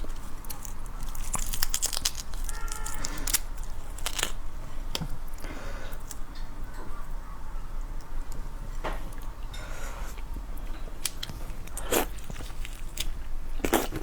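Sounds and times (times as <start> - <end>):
prawn shell cracking and peeling: 0.0 - 5.4, 11.0 - 13.8.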